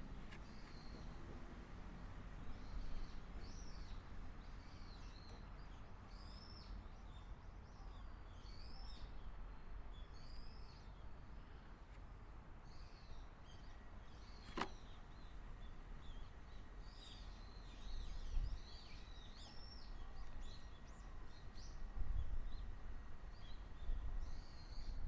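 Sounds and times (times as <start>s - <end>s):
small birds chirping: 12.6s - 25.0s
sharp click: 14.4s - 14.8s.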